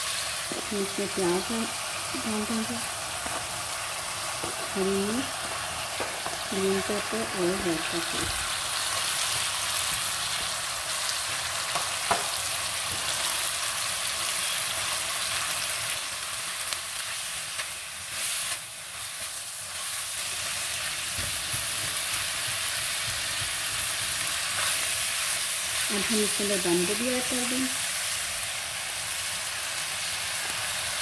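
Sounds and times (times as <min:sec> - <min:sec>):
food sizzling in a wok: 0:00.0 - 0:31.0
spatula stirring food: 0:17.1 - 0:25.9.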